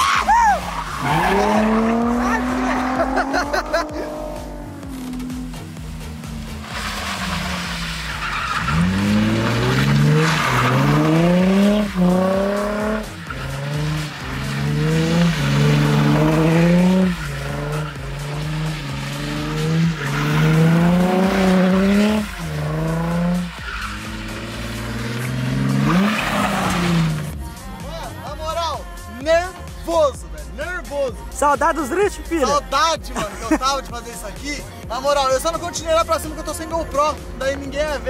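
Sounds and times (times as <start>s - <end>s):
car engine revving hard: 0.9s - 27.4s
tyres sliding on wet surface: 6.0s - 27.4s.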